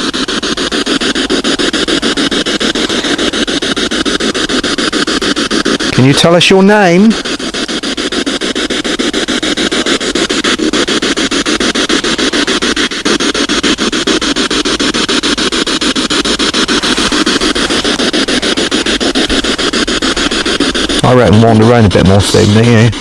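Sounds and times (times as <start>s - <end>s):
radio static sweeping stations: 0.0s - 23.0s.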